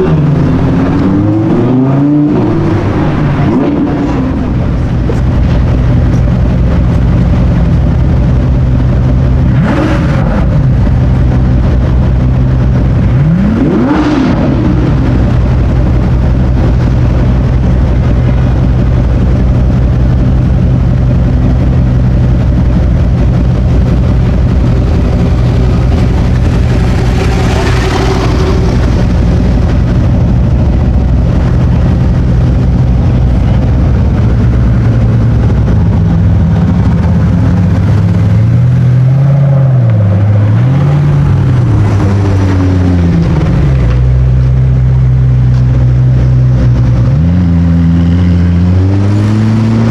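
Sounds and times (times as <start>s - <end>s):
car engine idling and revving: 0.0s - 49.9s
passing vehicle noise: 21.6s - 49.9s.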